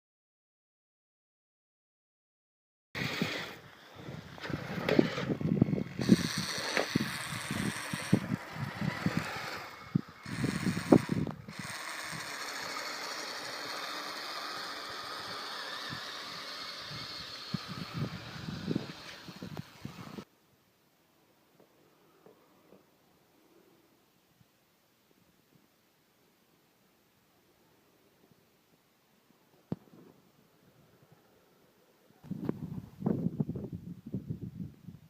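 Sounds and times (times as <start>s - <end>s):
toy vehicle electric motor: 3.0s - 20.3s
tracks clattering and clicking: 4.3s - 20.2s.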